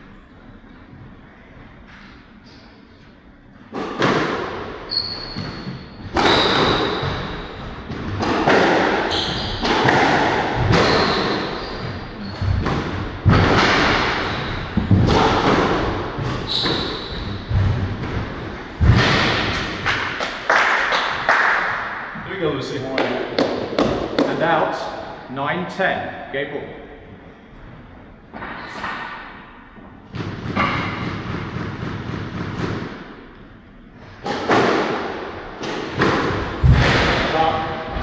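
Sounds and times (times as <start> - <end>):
squash ball struck by rackets: 3.7 - 22.1, 22.9 - 24.5, 30.0 - 33.6, 34.2 - 37.6
sneakers squeaking on court: 4.9 - 18.8.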